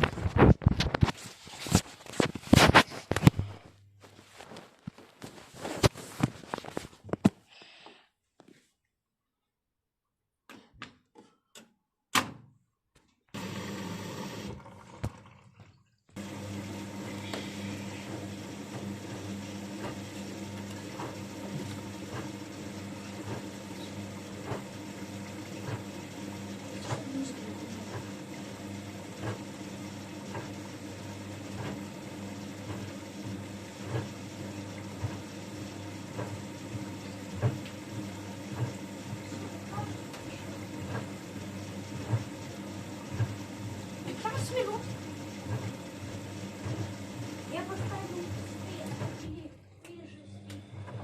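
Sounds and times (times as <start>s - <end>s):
water rushing into washing machine: 13.3s - 49.5s, 50.5s - 51.0s.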